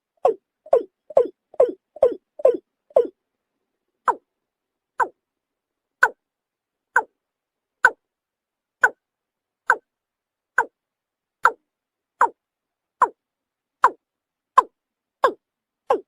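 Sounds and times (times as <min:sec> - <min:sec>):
bird calling hollow notes: 0:00.2 - 0:03.2, 0:14.6 - 0:16.0.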